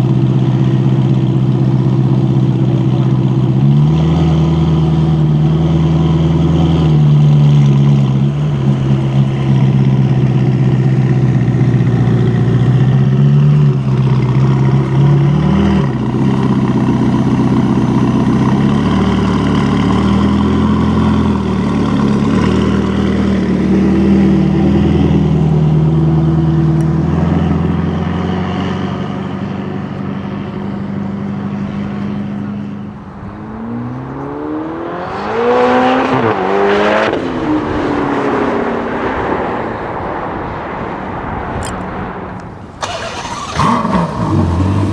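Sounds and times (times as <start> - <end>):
car engine running at low revs: 0.0 - 44.9
engine revving up sharply: 3.8 - 29.4, 33.4 - 38.9, 42.8 - 44.9.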